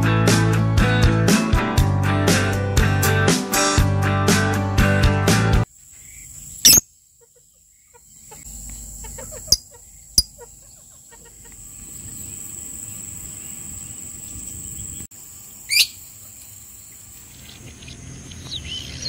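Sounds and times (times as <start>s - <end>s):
high insect drone: 5.7s - 18.8s
shrill bird chirps: 6.0s - 11.9s, 15.6s - 16.1s
chickens clucking: 7.1s - 12.8s.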